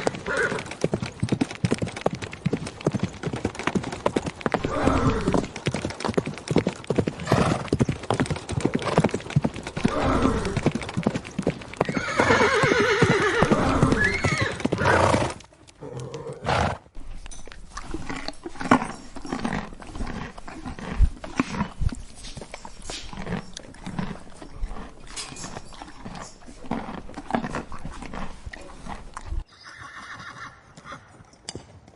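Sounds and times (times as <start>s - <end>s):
horse whinnying: 0.0s - 0.7s, 4.5s - 5.5s, 9.8s - 10.8s, 11.8s - 16.8s, 29.5s - 31.1s
hooves clip-clopping: 0.0s - 31.9s.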